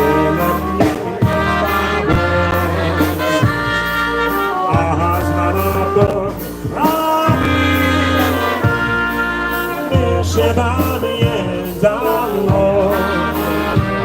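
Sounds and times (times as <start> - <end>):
polka band playing a waltz: 0.0 - 14.0.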